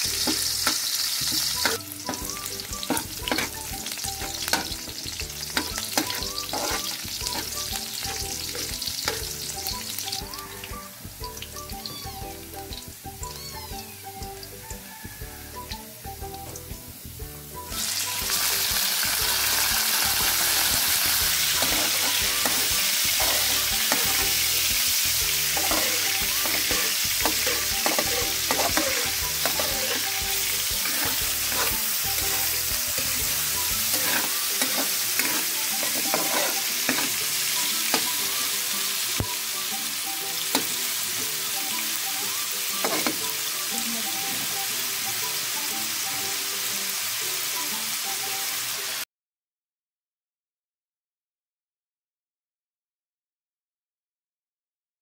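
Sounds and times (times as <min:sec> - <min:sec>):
metal spatula scraping wok: 0:00.0 - 0:09.7, 0:19.5 - 0:38.6, 0:42.8 - 0:43.3
meat sizzling in a wok: 0:00.0 - 0:49.1.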